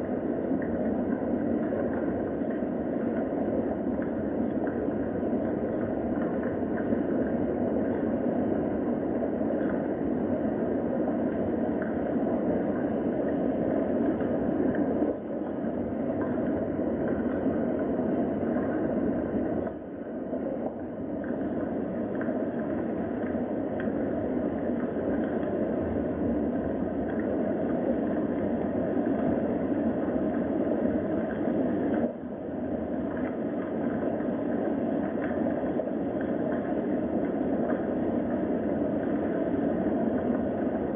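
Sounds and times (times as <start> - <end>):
drip-like ticks: 0.5 - 8.2, 11.3 - 20.0, 20.7 - 25.9, 27.0 - 29.4, 33.1 - 40.8.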